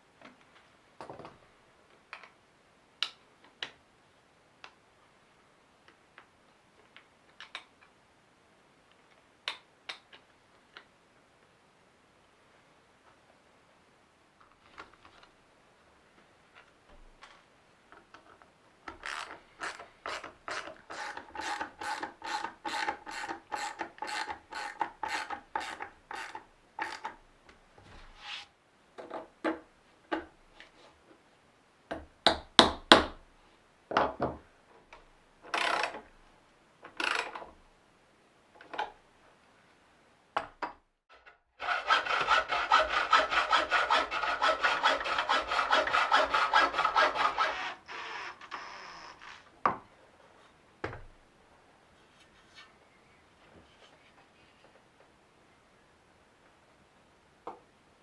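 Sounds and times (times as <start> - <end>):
hand tool rasping on wood: 19.1 - 27.1, 41.6 - 47.8.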